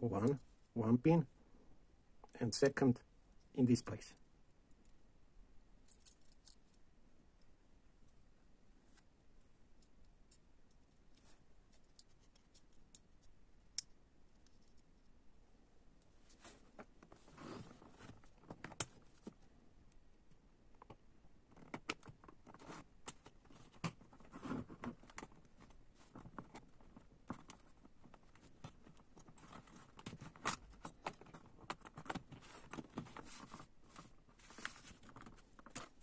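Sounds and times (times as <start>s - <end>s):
plastic parts clicking and tapping: 20.7s - 33.6s.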